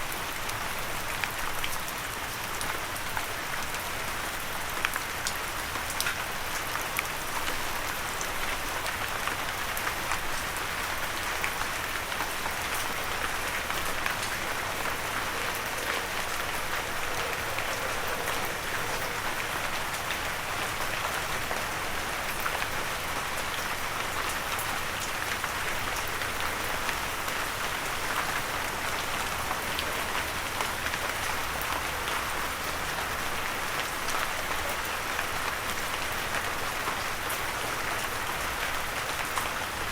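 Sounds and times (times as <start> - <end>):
light rain falling: 0.0 - 39.9.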